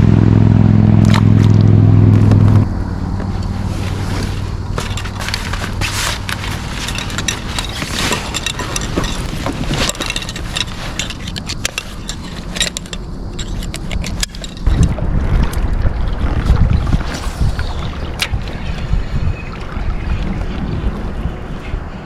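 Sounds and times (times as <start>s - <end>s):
steady low hum: 0.0s - 22.0s
wind rumble on microphone: 0.0s - 22.0s
clicks and scrapes on kayak: 3.6s - 15.0s.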